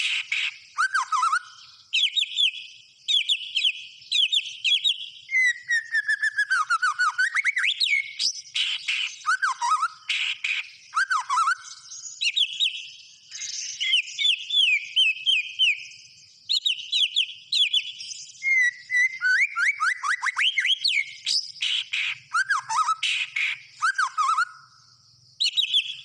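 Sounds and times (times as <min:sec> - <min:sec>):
songbird whistling: 0:00.0 - 0:26.0.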